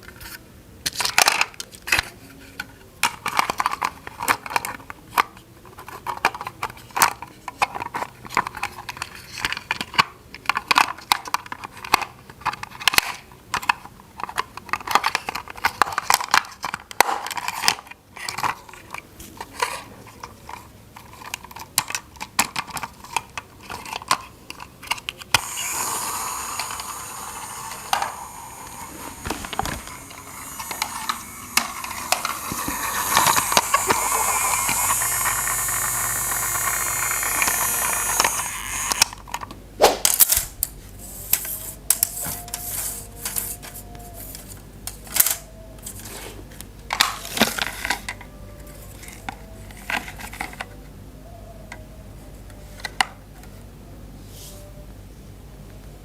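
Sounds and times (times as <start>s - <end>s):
plastic parts clicking and clattering: 0.0s - 40.5s, 46.9s - 50.8s.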